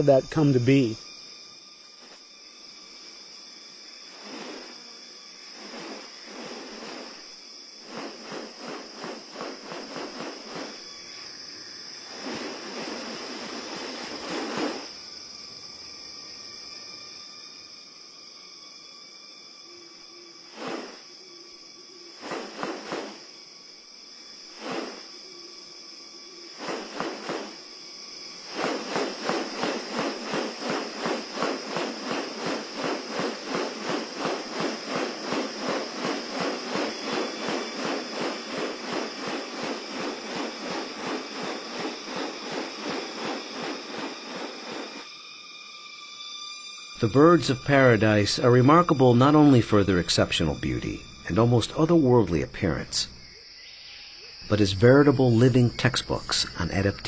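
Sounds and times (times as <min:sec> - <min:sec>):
high insect whine: 0:00.0 - 0:57.0
rapid rasping pulses: 0:26.5 - 0:45.1.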